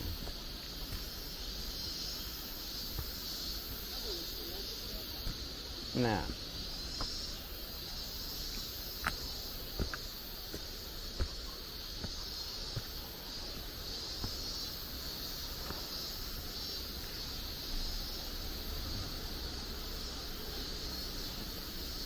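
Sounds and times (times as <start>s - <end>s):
footsteps on forest trail: 0.0s - 17.2s
high-pitched hiss: 0.0s - 22.0s.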